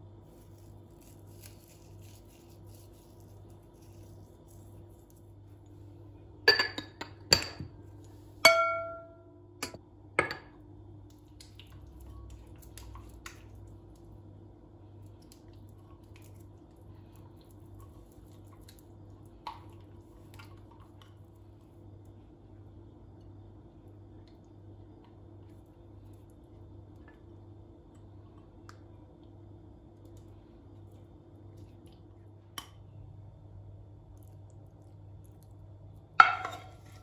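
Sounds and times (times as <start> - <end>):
steady low hum: 0.0 - 37.0
kitchenware clinking: 6.5 - 7.7, 8.4 - 10.6, 36.2 - 37.0.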